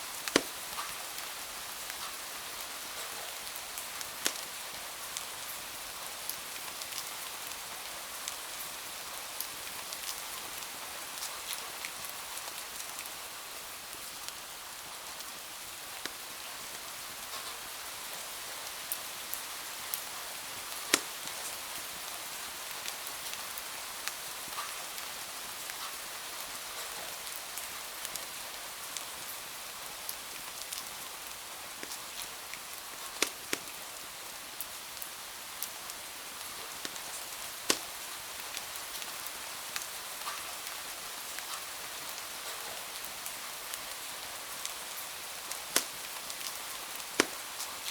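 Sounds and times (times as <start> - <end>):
wood fire crackling: 0.0 - 2.2, 2.9 - 5.3, 14.2 - 17.6, 18.8 - 22.4, 30.1 - 39.9, 44.6 - 47.9
steady rain falling: 0.0 - 47.9.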